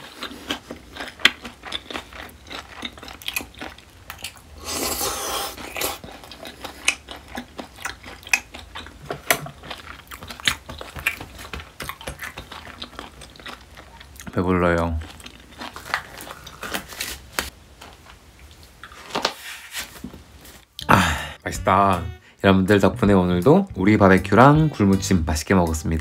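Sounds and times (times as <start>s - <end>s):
chewing food with wet mouth clicks: 0.0s - 4.4s, 5.7s - 14.4s, 15.0s - 16.6s.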